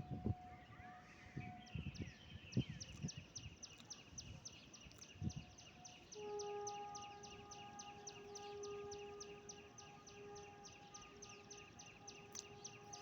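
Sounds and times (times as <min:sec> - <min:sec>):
steady horn-like tone: 0:06.2 - 0:13.0.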